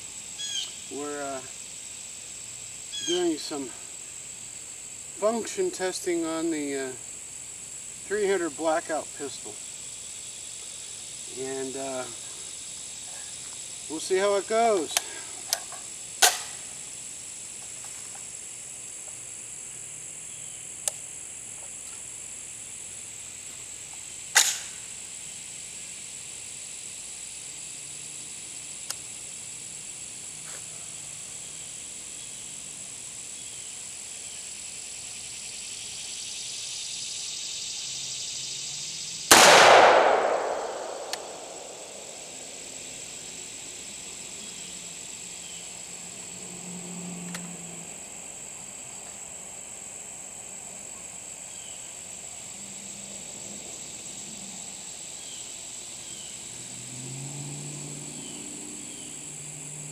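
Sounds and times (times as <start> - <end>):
high insect buzz: 0.0 - 59.9
pistol shot: 16.2 - 16.5, 24.4 - 24.6, 39.3 - 42.4
sharp crack: 16.2 - 16.7, 24.4 - 24.8, 39.3 - 42.6
faint clicks: 40.4 - 41.8.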